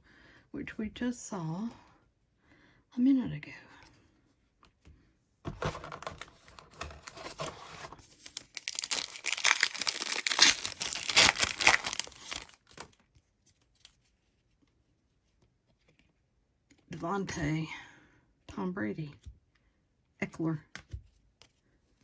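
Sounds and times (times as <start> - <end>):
card pack wrapper tearing and crinkling: 5.6 - 13.0.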